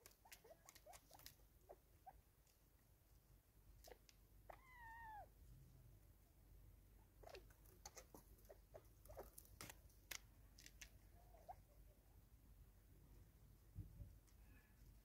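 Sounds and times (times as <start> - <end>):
bird clicks and chips: 0.0 - 1.4.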